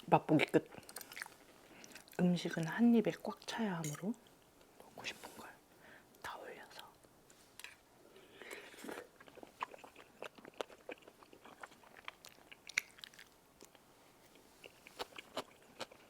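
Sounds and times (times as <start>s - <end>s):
person chewing with mouth clicks: 8.4s - 16.0s.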